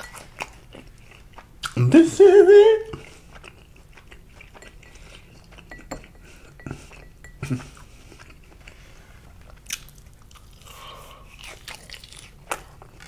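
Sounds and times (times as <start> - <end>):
crunchy biting and chewing: 9.4 - 13.0.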